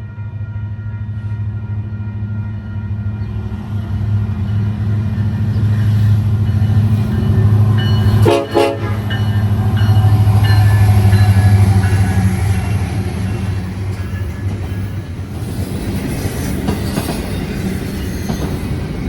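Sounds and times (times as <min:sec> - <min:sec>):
rail noise: 0:00.0 - 0:19.0
train horn: 0:07.3 - 0:13.1.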